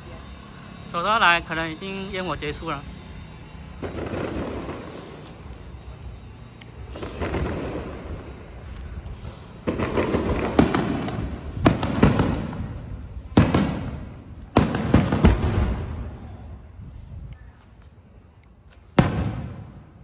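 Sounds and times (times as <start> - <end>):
fireworks crackling: 0.0 - 16.8, 18.6 - 20.0
fireworks bangs: 3.6 - 16.3, 19.0 - 20.0.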